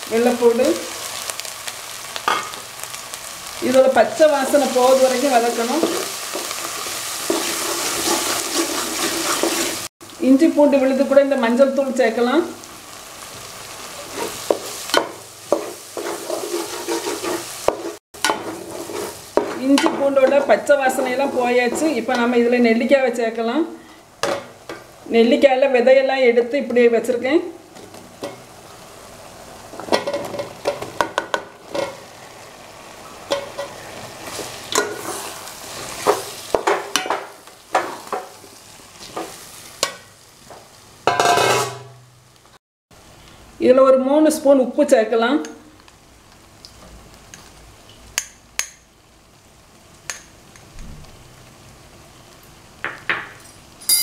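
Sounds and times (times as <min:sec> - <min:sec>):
paste sizzling in oil: 0:00.0 - 0:25.2, 0:26.6 - 0:42.4
metal spoon scraping a pot: 0:05.8 - 0:09.8, 0:15.6 - 0:20.5, 0:41.1 - 0:41.8.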